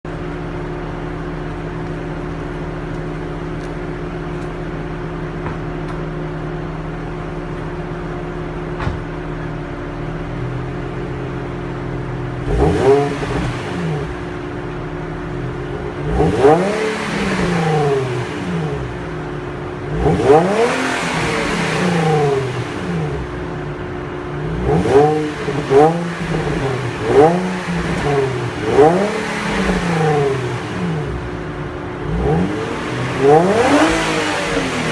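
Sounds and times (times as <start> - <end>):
car engine idling and revving: 0.0 - 34.9.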